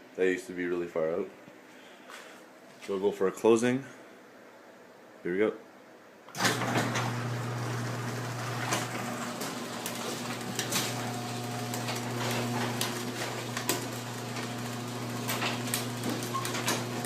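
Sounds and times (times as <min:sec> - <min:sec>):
garage door opener motor hum: 0:06.3 - 0:17.0.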